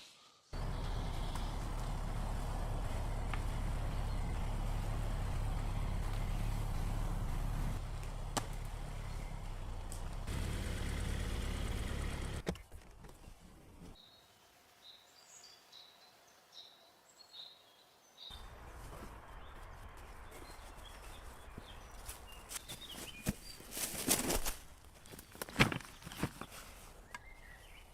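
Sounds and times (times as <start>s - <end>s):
small birds chirping: 0.4s - 24.2s, 25.0s - 27.9s
low steady rumble: 0.6s - 12.4s
steady outdoor hiss: 0.6s - 12.5s, 13.2s - 22.2s.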